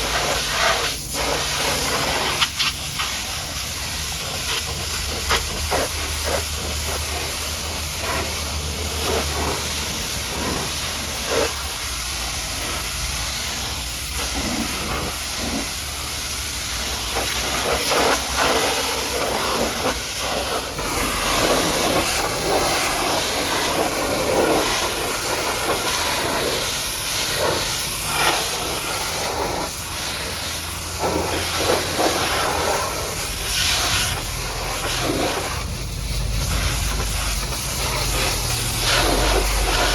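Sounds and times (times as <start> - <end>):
pressure washer spraying: 0.0 - 39.9
low hum: 32.9 - 39.9.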